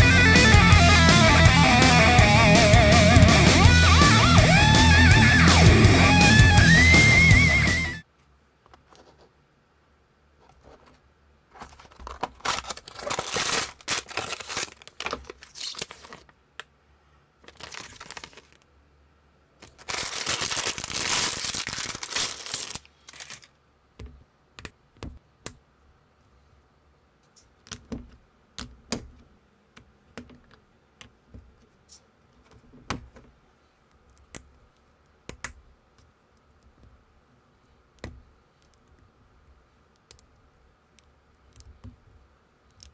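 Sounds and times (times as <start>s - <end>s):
packaging torn and crinkled: 11.6s - 16.3s, 17.4s - 18.6s, 19.6s - 23.5s.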